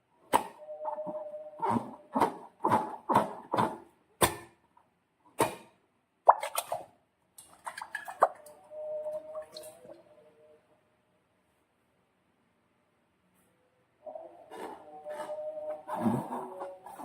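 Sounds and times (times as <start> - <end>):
slime squishing wet plops: 5.4 - 8.5.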